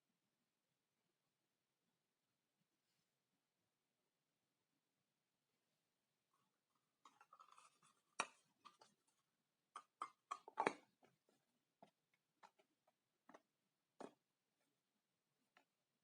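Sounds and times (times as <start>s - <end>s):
small objects clicking and tapping: 9.8s - 11.2s.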